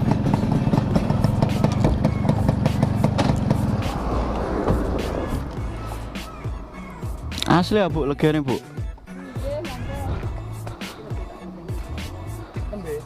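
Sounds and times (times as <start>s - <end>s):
two-stroke motorcycle engine running: 0.0s - 4.1s.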